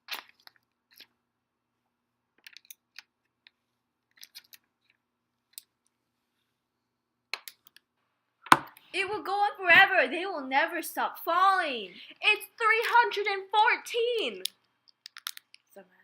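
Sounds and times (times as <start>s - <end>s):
dominoes toppling clicks: 14.4s - 15.7s.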